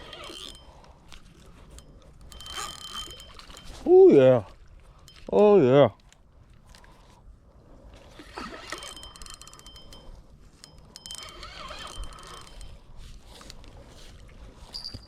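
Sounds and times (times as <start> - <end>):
fishing reel clicking with whine: 0.0 - 3.9, 8.1 - 13.5.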